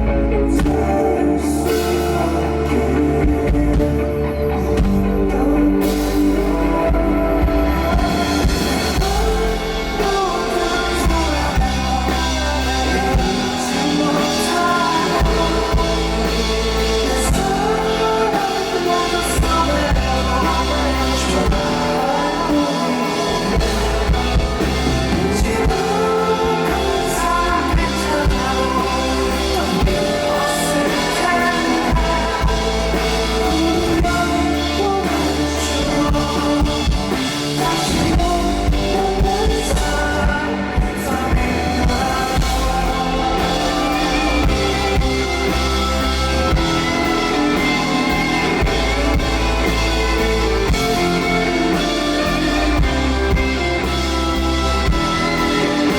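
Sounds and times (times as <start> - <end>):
live rock band playing: 0.0 - 55.9
person singing: 0.0 - 55.9.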